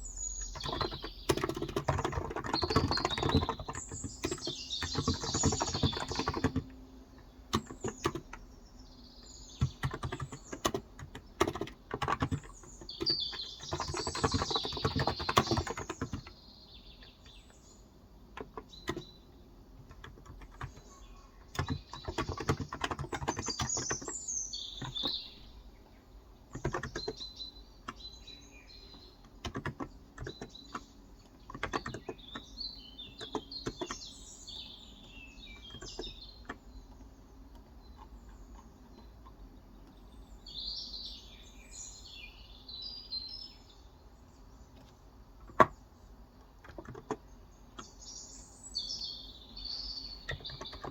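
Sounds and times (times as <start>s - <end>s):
birds chirping: 0.0s - 50.9s
typing on a keyboard: 0.4s - 8.5s, 9.5s - 16.4s, 18.2s - 25.4s, 26.4s - 28.1s, 28.9s - 40.0s, 46.4s - 48.0s, 50.1s - 50.9s.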